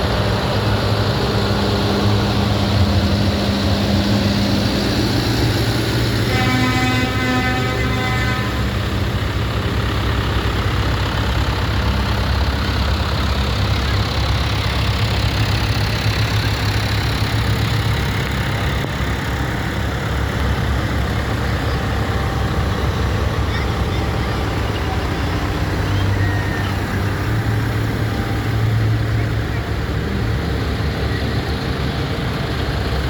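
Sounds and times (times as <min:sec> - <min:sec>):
tractor engines running: 0:00.0 - 0:33.0
horn sounding: 0:06.1 - 0:09.8, 0:20.0 - 0:29.7.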